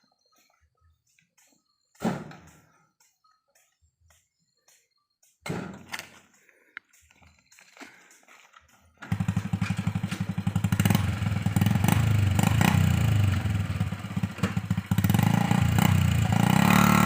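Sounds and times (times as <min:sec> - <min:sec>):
motorcycle engine running: 0:08.6 - 0:17.0.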